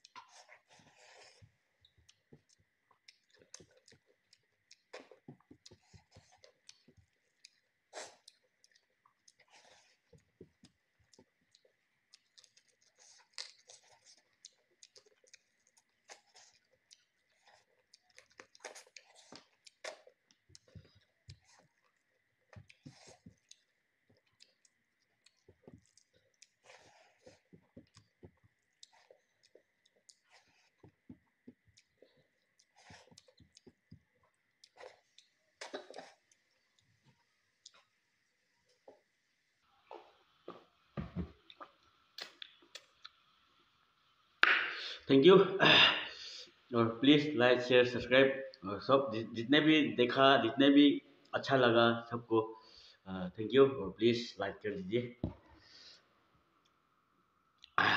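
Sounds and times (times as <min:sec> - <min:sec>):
person chewing food: 0:00.0 - 0:43.6, 0:55.2 - 0:57.8
wet mouth clicks and smacks: 0:10.6 - 0:16.2, 0:17.8 - 0:26.6, 0:41.5 - 0:43.2, 0:44.4 - 0:44.9.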